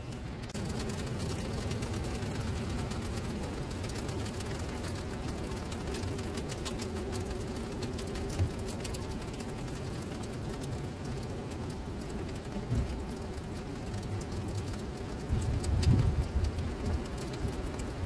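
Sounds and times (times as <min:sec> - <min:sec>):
rain splashing into standing water: 0:00.0 - 0:18.0.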